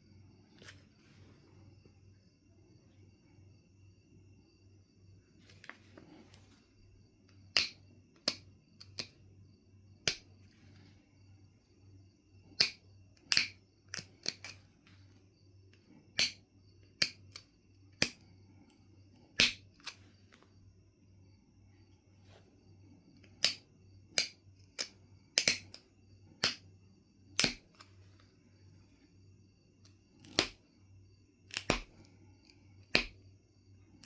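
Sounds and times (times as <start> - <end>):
stone knapping clicks: 7.5 - 9.2, 10.0 - 10.2, 12.4 - 14.6, 16.2 - 16.4, 17.0 - 18.2, 19.4 - 20.0, 23.2 - 25.8, 26.4 - 26.7, 27.4 - 27.9, 30.2 - 30.6, 31.5 - 32.1, 32.8 - 33.2.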